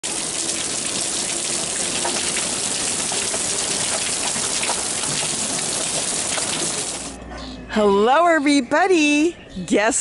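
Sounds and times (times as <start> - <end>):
heavy rain on a wooden deck: 0.0 - 7.2
water drips and plinks: 0.0 - 7.2
water streaming off a roof: 0.0 - 7.2.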